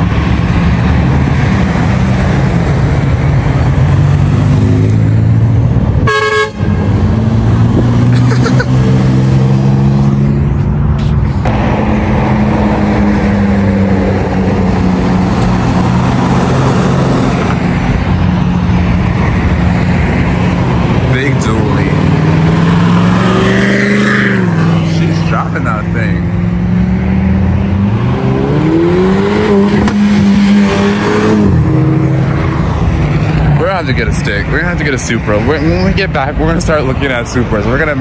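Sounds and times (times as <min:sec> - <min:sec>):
car engines revving: 0:00.0 - 0:38.0
car horn toot: 0:06.0 - 0:06.9.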